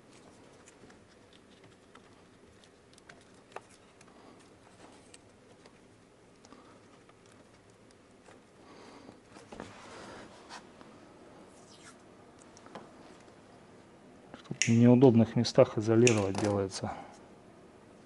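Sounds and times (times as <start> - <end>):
electrical tape rustling: 0.0 - 13.4
small clicks of hand work: 16.0 - 16.6.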